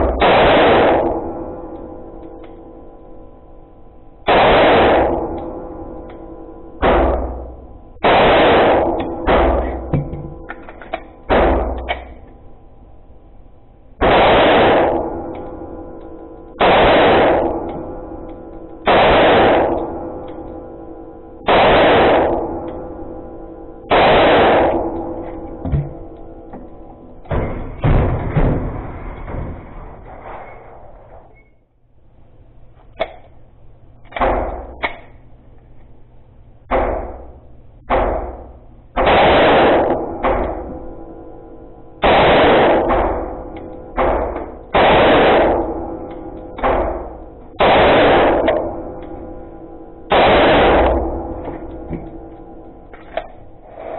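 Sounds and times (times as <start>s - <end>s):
pistol shots with ringing decay: 0.0s - 2.8s, 4.2s - 12.3s, 14.0s - 26.2s, 36.7s - 52.9s.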